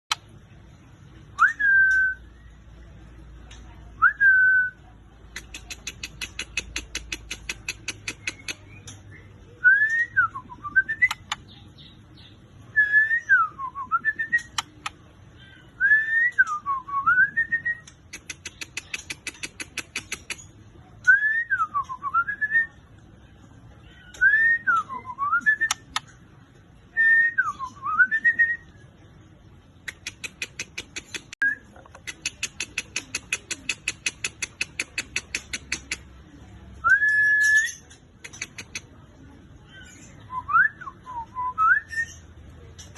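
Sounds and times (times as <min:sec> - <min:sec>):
bird ticking chatter: 0:05.3 - 0:09.1, 0:17.8 - 0:20.6, 0:29.8 - 0:36.1.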